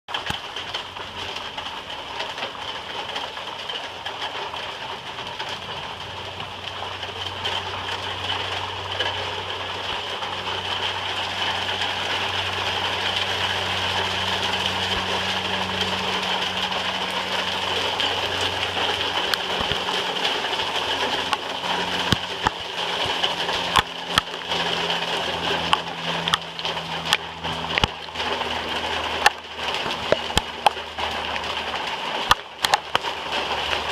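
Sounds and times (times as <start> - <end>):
rain falling: 0.1 - 33.9
sharp raindrop taps: 0.1 - 33.9.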